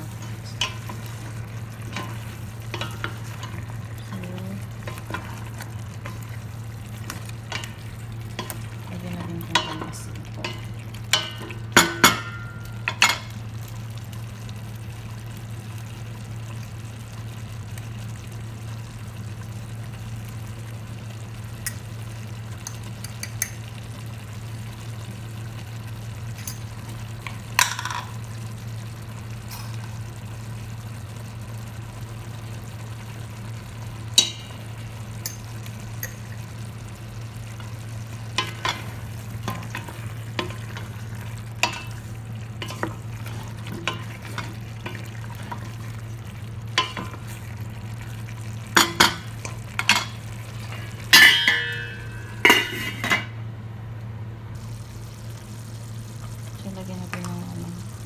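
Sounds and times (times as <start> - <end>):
chicken sizzling in a pan: 0.0 - 58.0
utensil clinking against pan: 9.2 - 13.3, 48.8 - 53.3.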